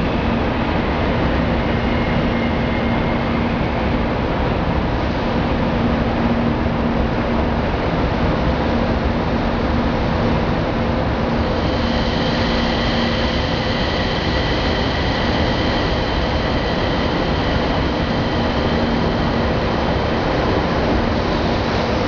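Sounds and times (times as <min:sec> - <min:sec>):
train rumbling in slowly: 0:00.0 - 0:22.0.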